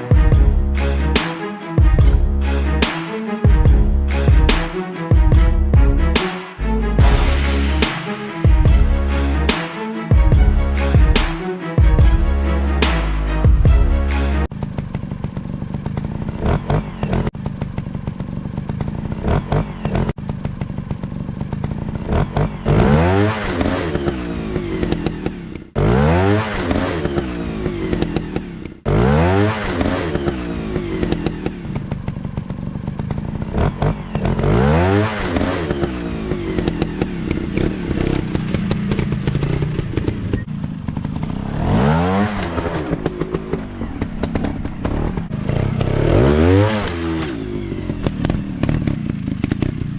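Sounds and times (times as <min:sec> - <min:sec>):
dirt bike engines revving: 0:14.9 - 0:49.9.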